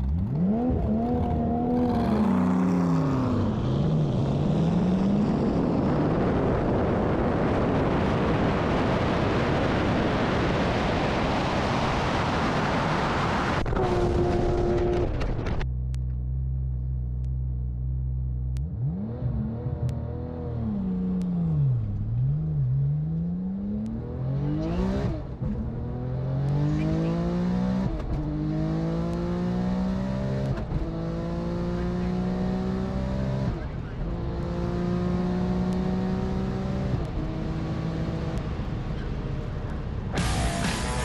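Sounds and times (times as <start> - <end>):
race car engine revving: 18.6 - 38.6.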